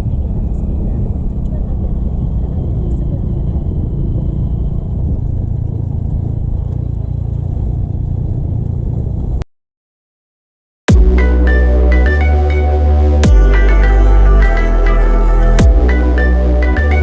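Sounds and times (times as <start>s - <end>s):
motorcycle engine and road rumble: 0.0s - 9.4s.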